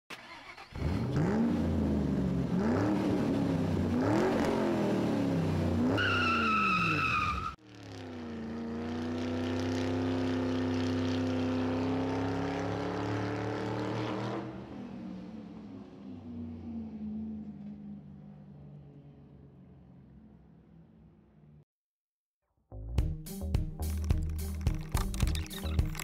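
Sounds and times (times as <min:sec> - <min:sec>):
car engine accelerating: 0:00.2 - 0:21.6
tyre squeal: 0:06.0 - 0:07.6.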